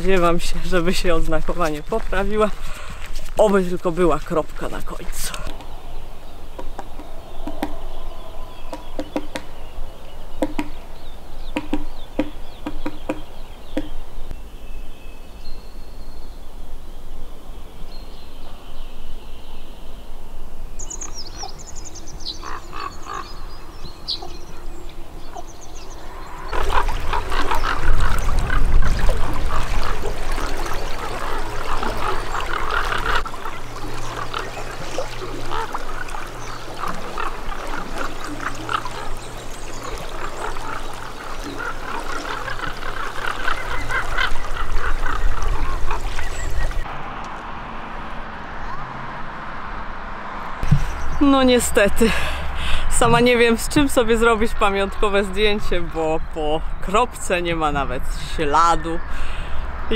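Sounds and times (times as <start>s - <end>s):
birds chirping: 0.0s - 46.9s, 50.5s - 59.9s
chorus of animal calls: 22.3s - 46.8s.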